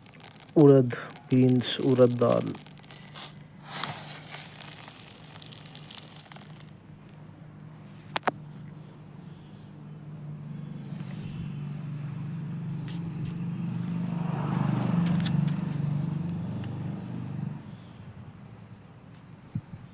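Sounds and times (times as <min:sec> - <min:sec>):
vehicle passing by: 0:07.6 - 0:18.3.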